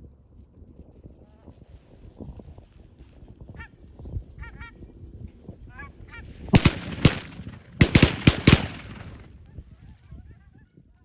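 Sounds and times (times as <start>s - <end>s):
shotgun shots: 6.6s - 9.4s.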